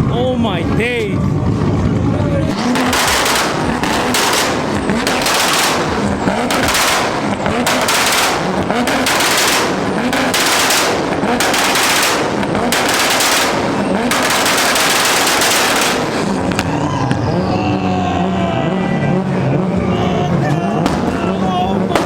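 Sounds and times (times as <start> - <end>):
car engine revving: 1.2 - 22.0
rapid exhaust pops: 2.5 - 17.3, 20.5 - 22.0.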